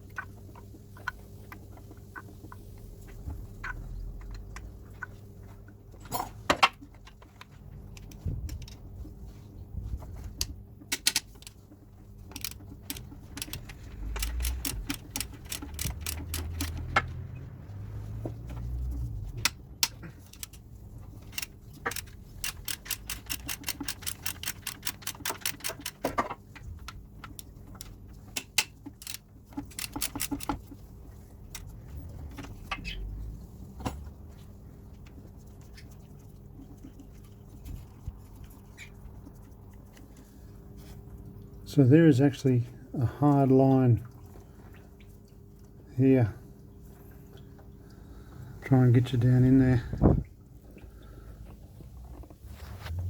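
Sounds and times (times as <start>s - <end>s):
hand ratchet clicking: 12.3s - 17.2s, 19.4s - 20.6s, 21.2s - 26.2s, 27.3s - 30.6s.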